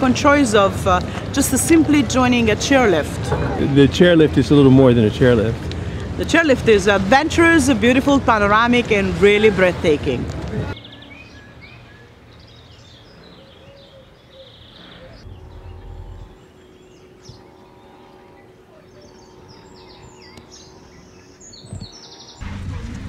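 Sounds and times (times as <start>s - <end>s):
songbirds chirping and singing: 10.7s - 22.4s.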